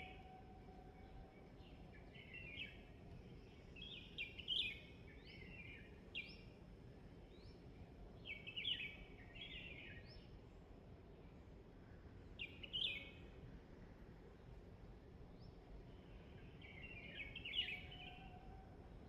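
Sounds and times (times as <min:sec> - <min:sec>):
faint background hiss: 0:00.0 - 0:19.0
songbird chirping: 0:01.0 - 0:06.4, 0:15.3 - 0:19.0.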